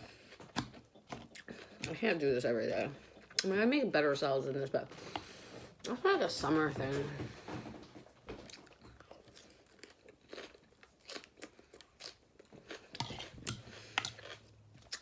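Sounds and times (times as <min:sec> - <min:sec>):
person chewing lettuce: 0:00.0 - 0:02.0, 0:08.4 - 0:15.0.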